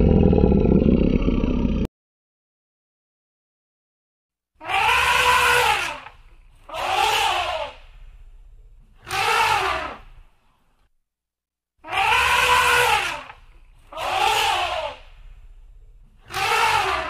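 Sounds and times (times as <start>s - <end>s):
elephant trumpeting: 4.6s - 6.1s, 9.0s - 10.0s, 11.8s - 13.3s, 16.2s - 17.0s.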